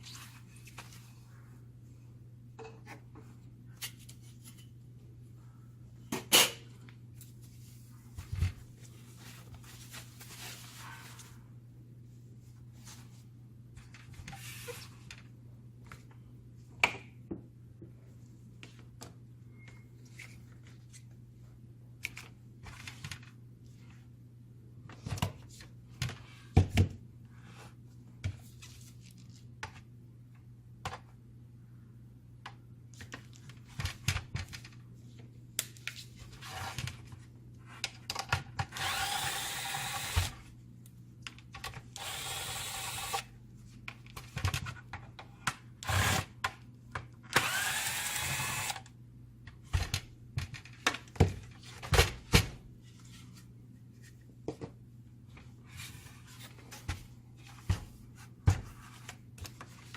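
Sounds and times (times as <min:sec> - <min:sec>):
small power tool running: 0:38.8 - 0:40.4, 0:42.0 - 0:43.3, 0:45.8 - 0:46.3, 0:47.4 - 0:48.9.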